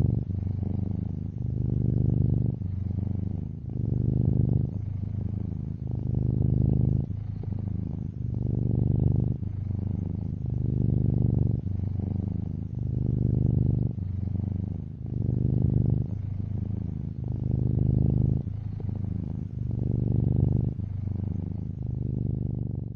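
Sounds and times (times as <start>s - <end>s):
cat purring: 0.0s - 22.9s.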